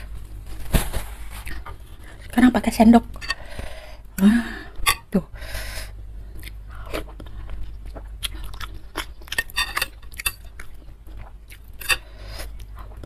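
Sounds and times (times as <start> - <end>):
low steady hum: 0.0 - 13.0
wet chewing and mouth smacks: 6.4 - 11.8.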